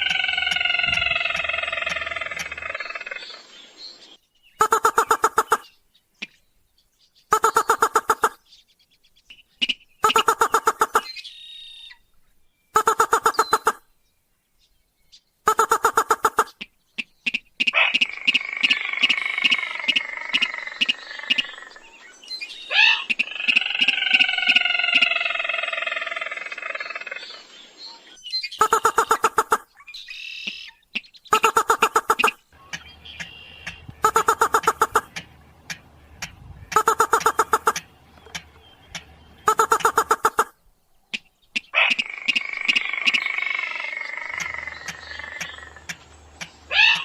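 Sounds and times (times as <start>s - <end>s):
rail bird clicking calls: 0.0s - 3.3s, 4.6s - 6.4s, 7.3s - 8.4s, 9.3s - 11.3s, 12.8s - 13.8s, 15.5s - 21.8s, 22.7s - 25.5s, 28.5s - 47.0s
harsh wavering bird call: 0.0s - 3.4s, 4.6s - 5.7s, 7.3s - 8.4s, 10.0s - 12.0s, 12.8s - 13.8s, 22.5s - 27.4s, 28.4s - 40.6s, 46.7s - 47.0s.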